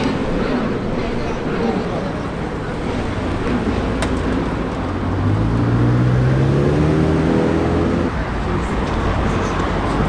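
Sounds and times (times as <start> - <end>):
other cars running: 0.0 - 10.0
car engine pulling away: 2.8 - 8.2.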